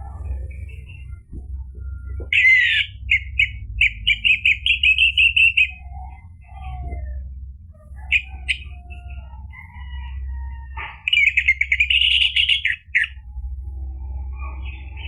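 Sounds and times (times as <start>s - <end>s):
steady low hum: 0.0s - 15.0s
bird singing whistled notes: 1.8s - 6.8s, 11.0s - 13.2s.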